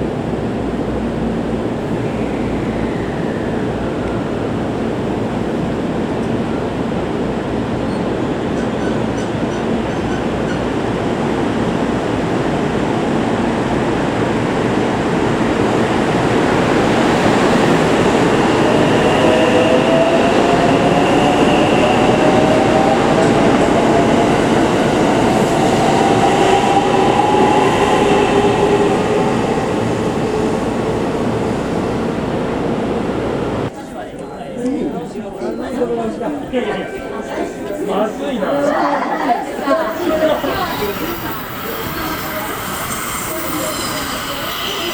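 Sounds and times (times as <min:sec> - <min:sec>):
electric train running: 0:08.6 - 0:33.7, 0:39.9 - 0:44.9.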